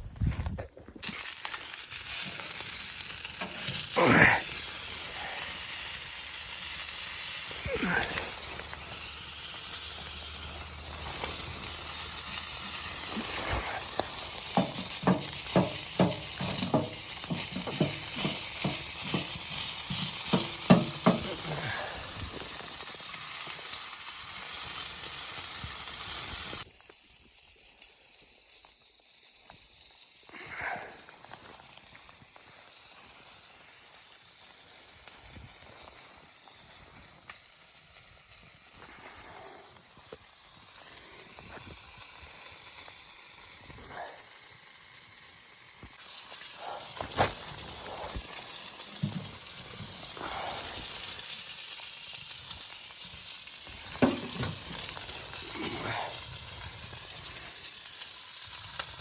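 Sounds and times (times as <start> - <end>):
utensil stirring in a pan: 1.0 - 23.7, 46.0 - 58.2
faint hiss: 1.0 - 59.0
food sizzling in a hot pan: 1.0 - 59.0.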